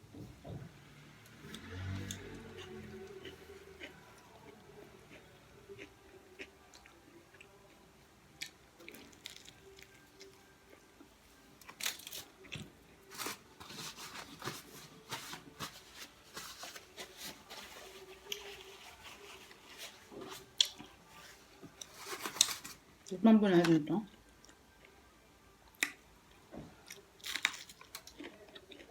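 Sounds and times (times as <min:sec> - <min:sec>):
person chewing food: 0:02.0 - 0:07.6, 0:26.8 - 0:28.9.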